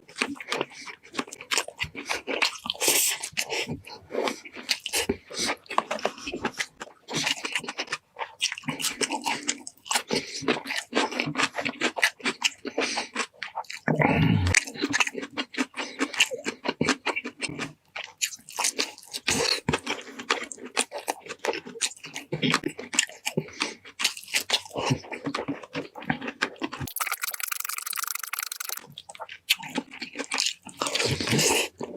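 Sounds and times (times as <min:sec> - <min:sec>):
chewing and crunching food: 0:00.0 - 0:31.9
mouth smacks: 0:26.9 - 0:28.8.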